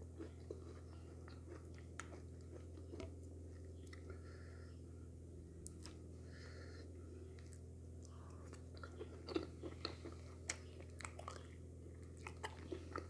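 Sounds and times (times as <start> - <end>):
low hum: 0.0 - 13.0
wet chewing and mouth smacks: 0.2 - 3.2, 8.4 - 13.0.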